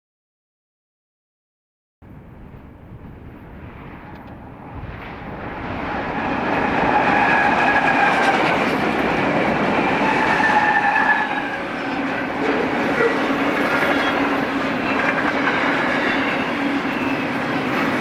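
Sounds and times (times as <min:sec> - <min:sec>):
freight train passing: 0:02.0 - 0:18.0
wheels clacking on rail joints: 0:06.1 - 0:18.0.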